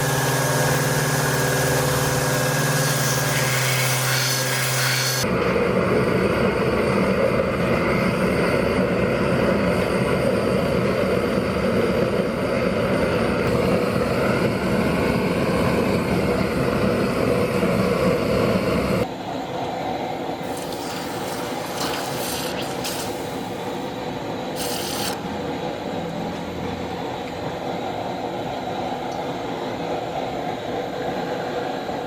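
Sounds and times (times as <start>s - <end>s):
workshop equipment running: 0.0s - 7.9s, 20.2s - 30.0s.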